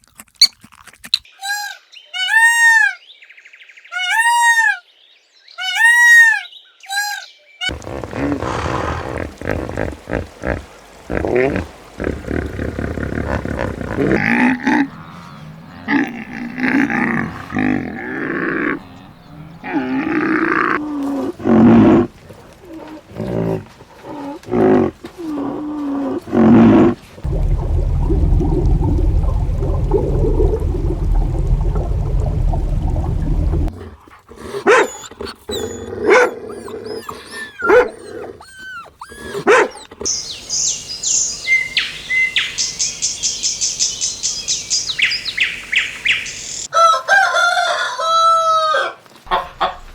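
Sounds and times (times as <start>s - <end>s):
big cat roaring and growling: 7.7s - 22.1s, 22.7s - 34.7s
low rumble: 27.2s - 33.7s.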